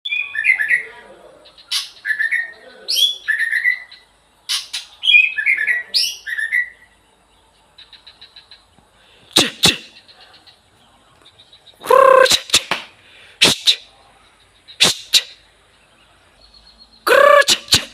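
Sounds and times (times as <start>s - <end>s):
bird singing whistled phrases: 0.1s - 0.9s, 1.7s - 6.9s.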